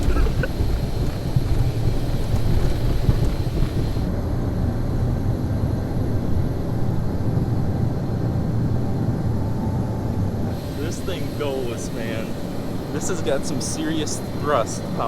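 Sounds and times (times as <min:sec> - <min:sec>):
jet engines rumbling: 0:00.0 - 0:15.0
rushing hiss: 0:10.6 - 0:15.0.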